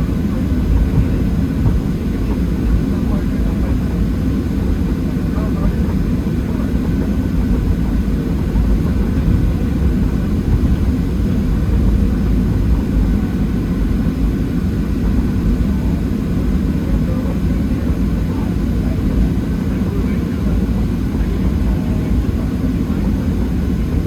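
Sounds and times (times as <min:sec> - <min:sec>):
jet engines rumbling in cabin: 0:00.0 - 0:24.0.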